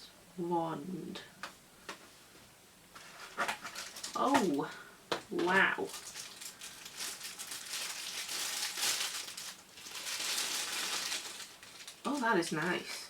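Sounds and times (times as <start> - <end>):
packaging rustling and crinkling: 2.9 - 13.0.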